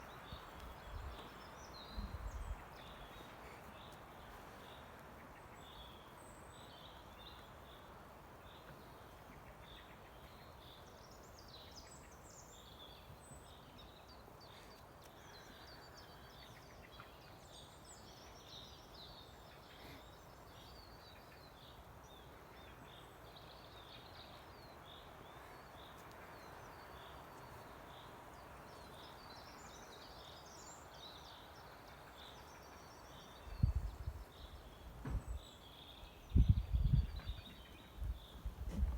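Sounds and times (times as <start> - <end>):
thumps on microphone: 35.0 - 35.4, 38.6 - 38.9.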